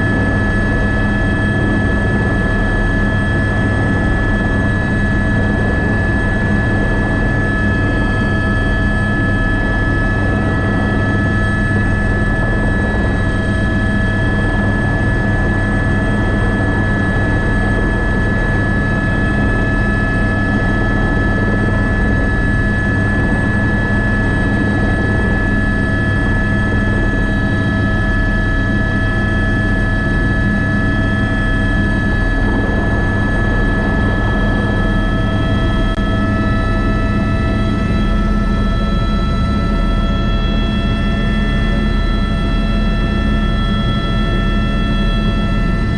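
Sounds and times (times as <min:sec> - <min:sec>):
helicopter engine whine: 0:00.0 - 0:45.9
helicopter rotor drone: 0:00.0 - 0:45.9.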